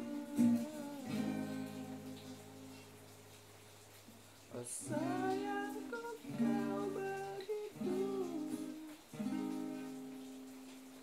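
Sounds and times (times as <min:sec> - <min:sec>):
person humming: 0:00.0 - 0:02.8, 0:04.9 - 0:09.0
acoustic guitar strumming chords: 0:00.0 - 0:03.4, 0:04.8 - 0:10.9.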